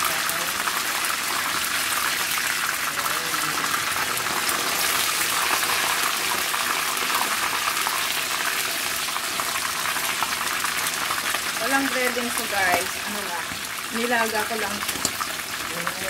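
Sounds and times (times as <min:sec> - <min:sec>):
chicken frying in oil: 0:00.0 - 0:16.0.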